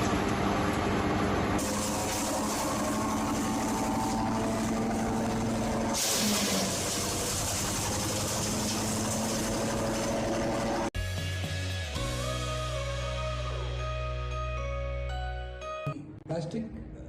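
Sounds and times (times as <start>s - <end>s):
wood chipper engine humming: 0.0s - 10.9s.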